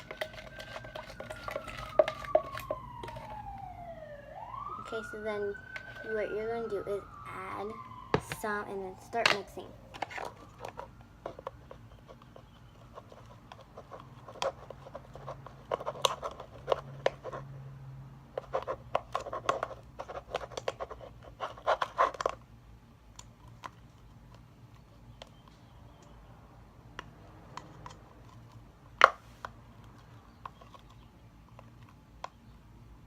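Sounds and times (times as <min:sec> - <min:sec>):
utensil scraping slime container: 0:00.0 - 0:03.3.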